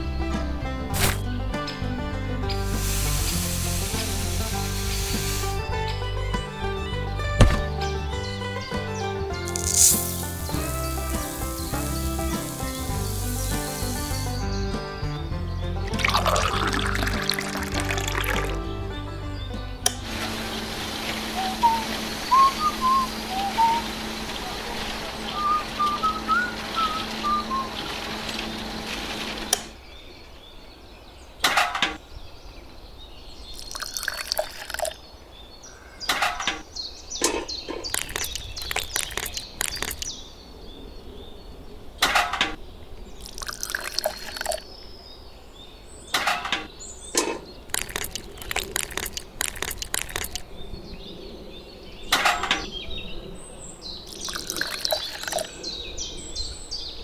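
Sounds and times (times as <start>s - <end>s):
trowel scraping wet mortar: 9.5s - 10.4s.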